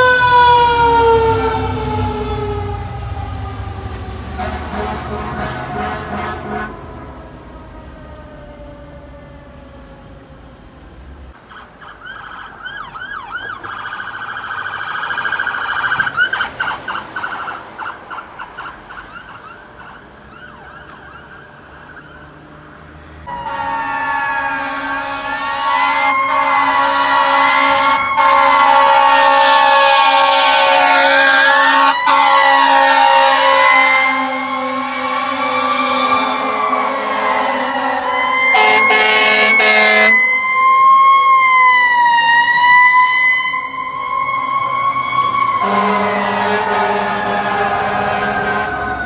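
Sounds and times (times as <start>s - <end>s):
yelp siren: 0.0s - 10.1s, 11.5s - 22.4s, 23.2s - 49.0s
fire engine wail siren: 0.0s - 49.0s
air horn blast: 4.2s - 7.0s, 23.3s - 40.3s, 45.6s - 49.0s.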